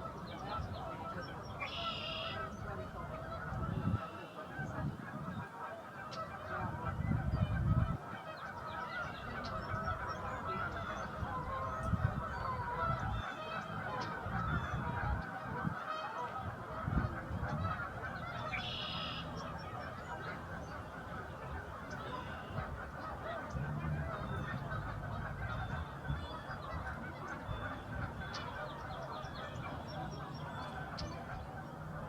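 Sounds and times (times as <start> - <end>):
geese honking: 0.0 - 32.0
low rumbles: 23.5 - 25.6.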